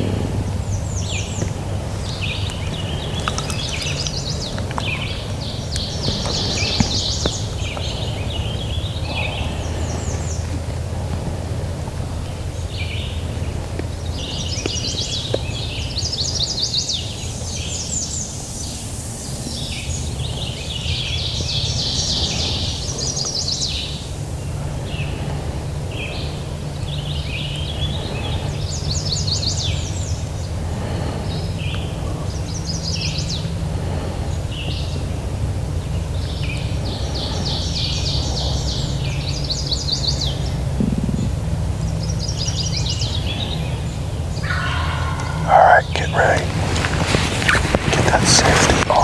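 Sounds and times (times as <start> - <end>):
songbirds singing trilled phrases: 44.4 - 47.7.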